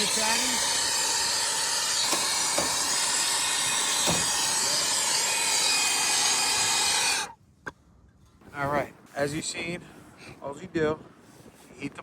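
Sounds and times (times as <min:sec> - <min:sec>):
torch flame hissing: 0:00.0 - 0:07.4.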